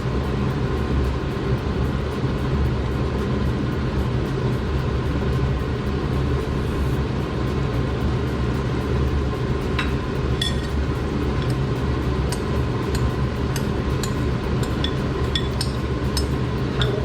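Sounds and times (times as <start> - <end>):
range hood fan humming: 0.0 - 17.0
utensil clinking against pan: 9.7 - 17.0.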